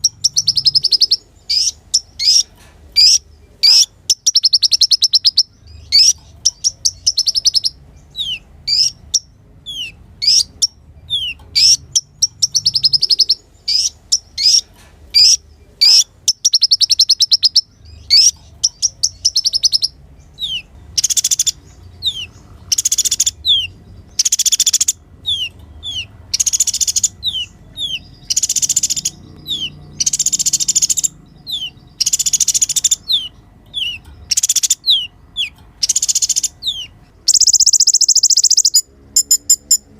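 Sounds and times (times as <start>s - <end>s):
sunbird singing trills: 0.0s - 39.9s.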